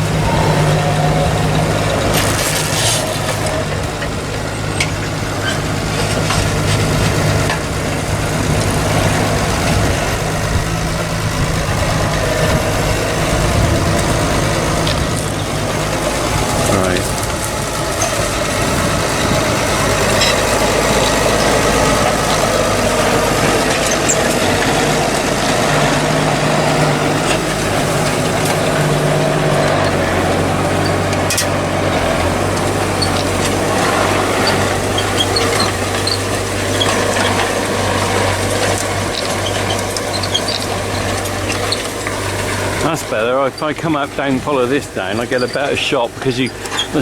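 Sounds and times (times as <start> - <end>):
tractor engine running: 0.0 - 47.0.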